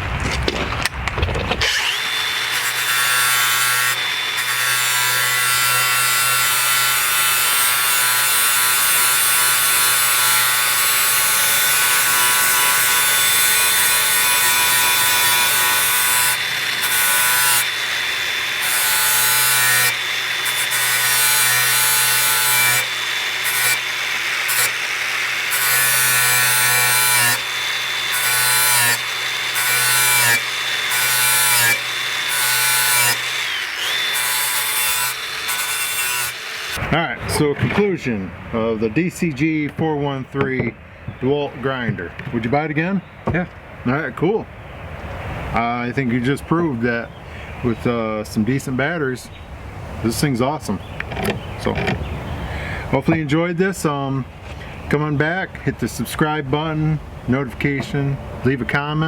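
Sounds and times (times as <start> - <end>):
angle grinder grinding steel: 1.6 - 36.9.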